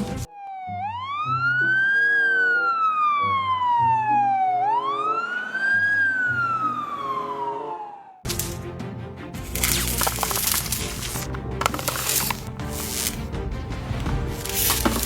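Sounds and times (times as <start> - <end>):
wailing fire engine siren: 0.3 - 8.1.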